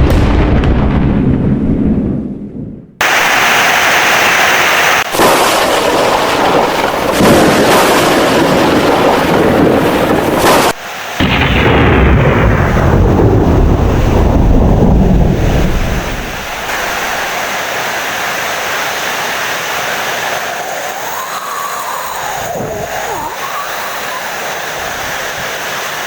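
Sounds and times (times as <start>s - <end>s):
deep thunder rumble: 0.0s - 3.2s, 5.1s - 17.3s
heavy rain: 3.0s - 26.0s.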